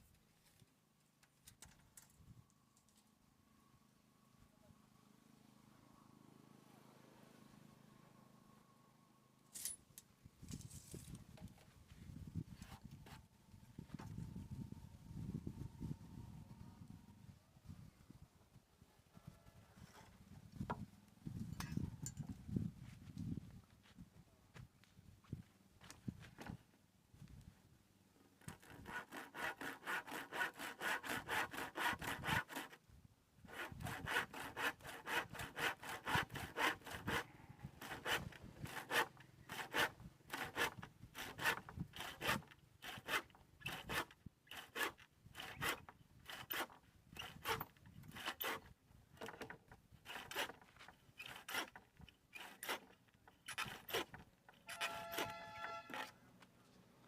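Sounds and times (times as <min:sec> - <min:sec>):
hand saw cutting wood: 0:28.4 - 0:32.8, 0:33.4 - 0:56.1.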